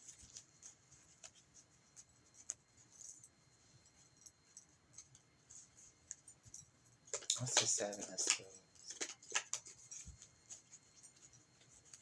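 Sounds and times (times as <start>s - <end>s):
cards clicking and rustling: 7.1s - 10.2s.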